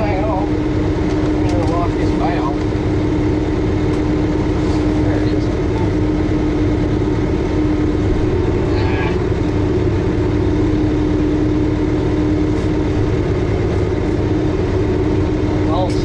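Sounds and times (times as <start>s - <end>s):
tractor diesel engine idling: 0.0s - 16.0s.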